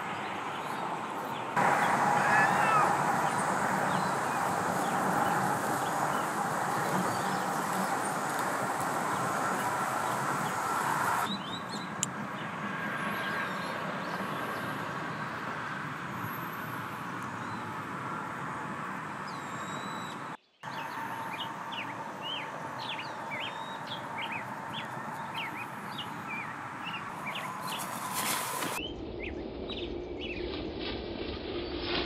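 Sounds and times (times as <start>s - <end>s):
small birds chirping: 0.1s - 12.5s, 19.2s - 28.9s
steady background hiss: 1.6s - 11.3s.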